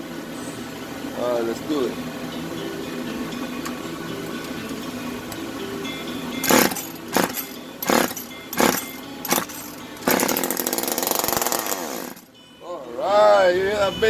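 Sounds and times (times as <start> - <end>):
chainsaw engine running: 6.4 - 12.2
starter rope pulls: 6.4 - 12.2.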